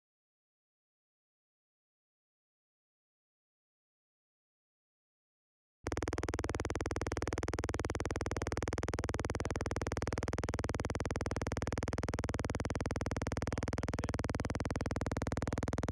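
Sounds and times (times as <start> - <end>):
pulsing synthesizer: 5.9 - 15.9.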